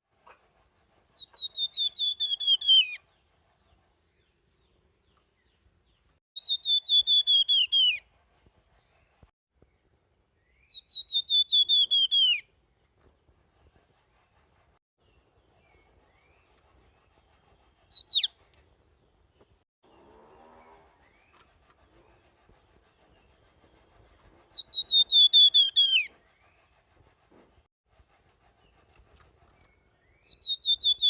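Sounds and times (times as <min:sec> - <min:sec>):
bird singing whistled notes: 0:01.2 - 0:03.1, 0:06.4 - 0:08.0, 0:10.4 - 0:12.5, 0:17.9 - 0:18.4, 0:24.5 - 0:26.6, 0:29.6 - 0:31.0.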